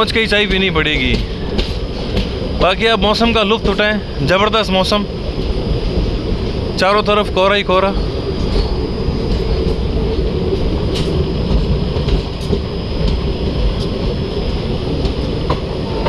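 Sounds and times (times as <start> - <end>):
faint rail clicks: 0.0 - 16.0
train wheels rumbling: 0.0 - 16.0.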